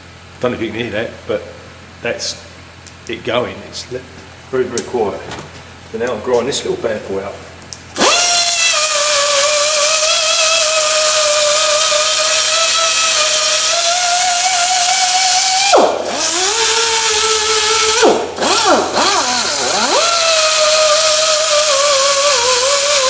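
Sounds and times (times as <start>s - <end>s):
grinder grinding metal: 8.0s - 23.0s.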